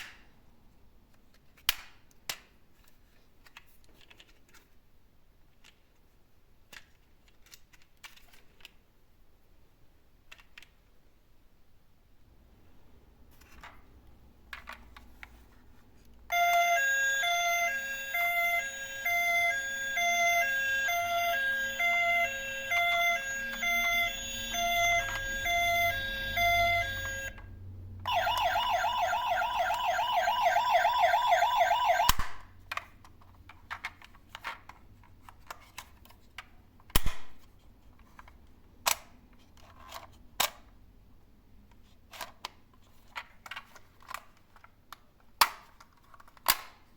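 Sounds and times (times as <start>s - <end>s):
fast warbling toy siren: 16.3s - 27.4s, 28.1s - 32.2s
electronic tune of stepped beeps: 18.2s - 27.4s, 28.1s - 32.1s.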